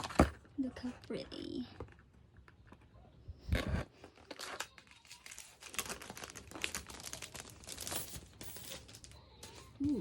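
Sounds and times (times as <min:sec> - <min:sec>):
packaging rustling and crinkling: 0:03.6 - 0:09.7
small crackles and clicks: 0:04.2 - 0:08.0
packaging tearing: 0:04.2 - 0:08.4.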